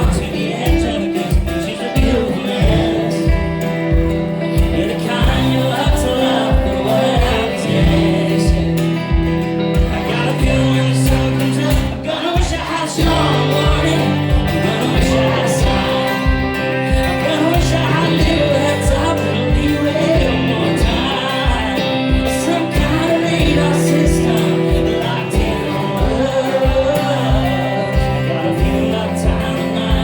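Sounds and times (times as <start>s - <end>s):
guitar: 0.0s - 30.0s
man singing: 0.0s - 30.0s.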